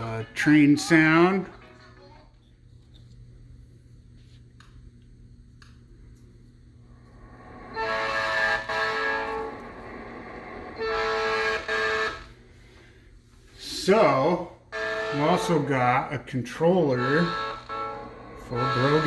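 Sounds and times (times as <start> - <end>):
train horn over speaker: 7.2 - 12.4, 13.6 - 19.0.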